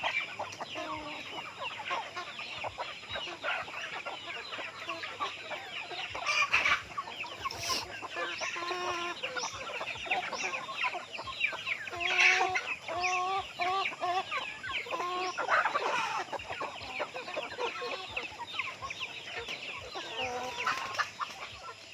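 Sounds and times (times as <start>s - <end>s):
chickens clucking: 0.0s - 21.9s.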